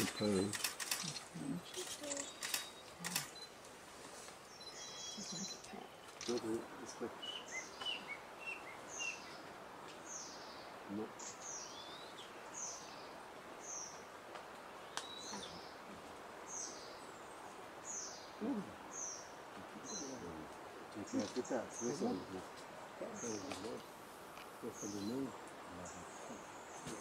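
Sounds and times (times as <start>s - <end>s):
songbird calling thin notes: 0.0s - 3.5s, 4.2s - 6.5s, 14.8s - 15.8s, 17.8s - 20.3s
background hiss: 0.0s - 27.0s.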